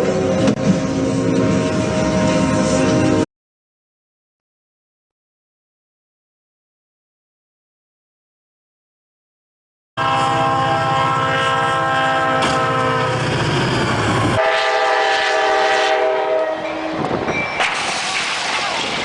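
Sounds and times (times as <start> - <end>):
train horn blaring: 0.0 - 3.2, 10.0 - 13.4, 14.3 - 17.1
moving train rumbling: 0.0 - 3.3, 10.0 - 19.0.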